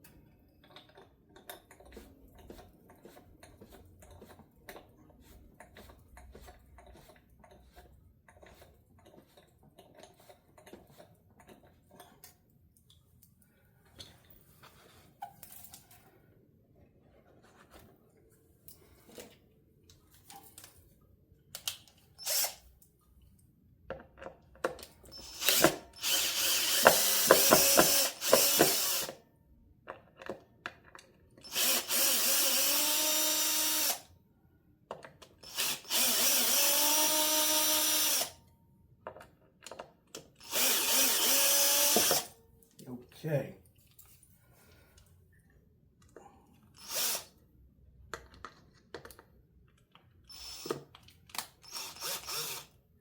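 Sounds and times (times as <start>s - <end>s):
cordless drill motor whine: 22.2s - 22.6s, 25.2s - 29.2s, 31.5s - 34.1s, 35.4s - 38.4s, 40.4s - 42.3s, 46.8s - 47.3s, 50.3s - 50.8s, 51.6s - 52.8s.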